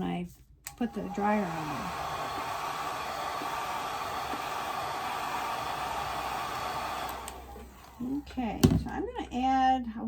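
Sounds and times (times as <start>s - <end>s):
hair dryer running: 0.7s - 8.2s.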